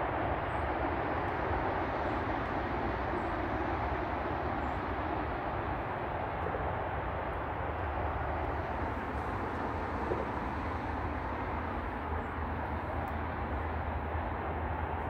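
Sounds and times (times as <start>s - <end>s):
distant freight train rumble: 0.0s - 15.0s.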